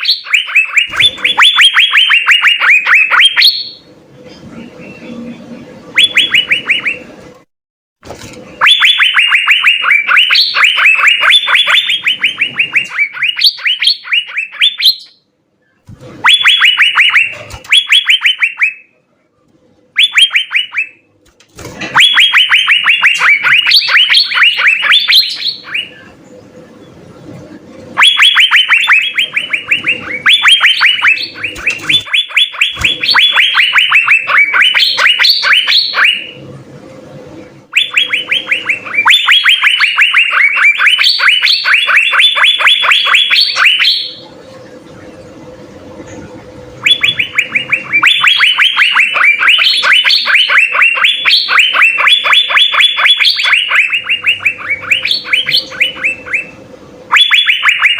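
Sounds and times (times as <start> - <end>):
bird singing downward notes: 0.0 - 7.4, 8.6 - 19.1, 19.7 - 21.1, 21.8 - 36.6, 37.3 - 57.9.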